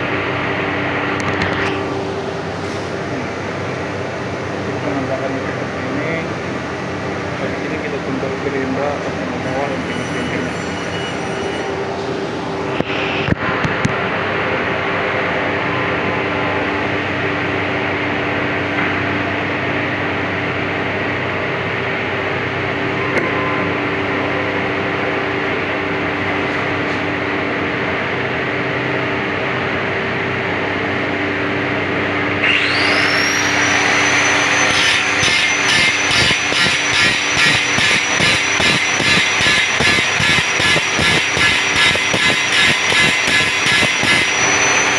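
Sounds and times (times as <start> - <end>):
workshop machine humming: 19.8 - 44.9
power tool motor whining: 32.4 - 44.9.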